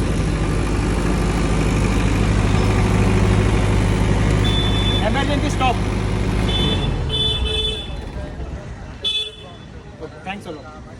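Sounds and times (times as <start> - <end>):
diesel generator droning: 0.0 - 10.4
high steady beep: 4.4 - 5.2.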